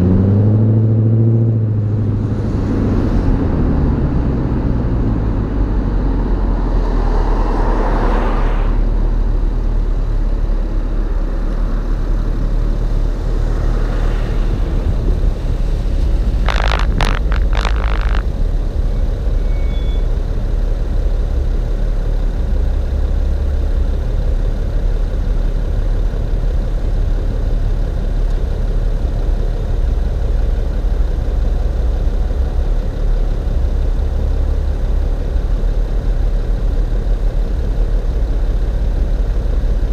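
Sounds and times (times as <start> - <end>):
car exhaust deep rumble: 0.0 - 39.9
sharp clicks: 16.5 - 18.3.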